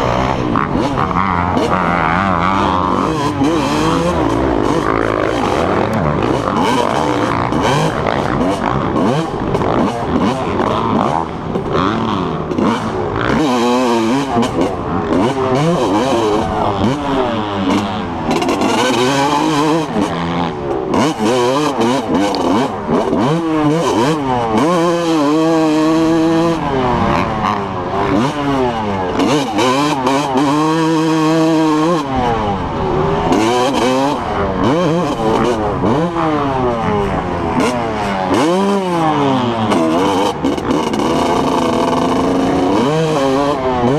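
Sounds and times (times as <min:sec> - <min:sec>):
dirt bike engines revving: 0:00.0 - 0:43.9.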